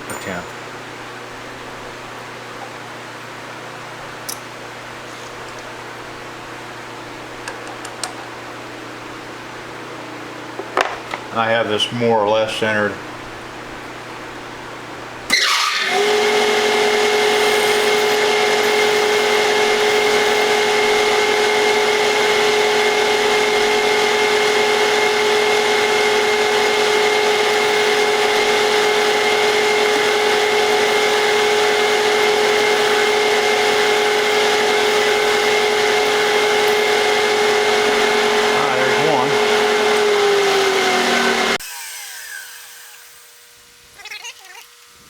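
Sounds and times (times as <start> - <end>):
milling machine spindle whine: 15.3 - 43.5.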